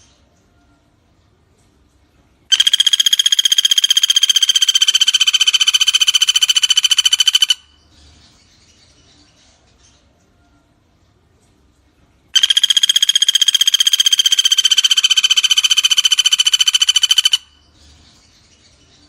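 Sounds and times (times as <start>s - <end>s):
woodpecker rattling call: 2.5s - 7.8s, 12.4s - 17.7s.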